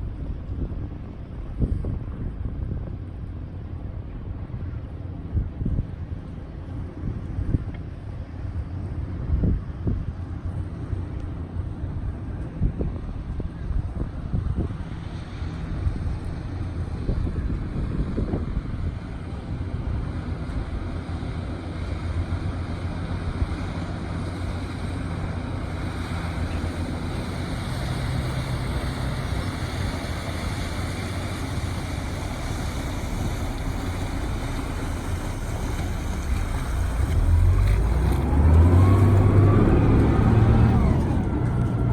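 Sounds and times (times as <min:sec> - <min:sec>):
boat engine running: 0:00.0 - 0:41.9
wind on microphone: 0:00.0 - 0:41.9
water rushing: 0:13.0 - 0:41.9.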